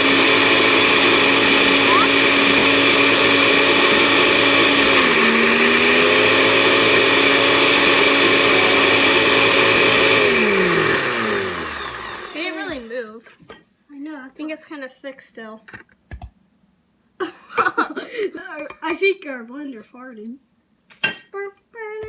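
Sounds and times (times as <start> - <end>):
electric blender running: 0.0 - 12.9.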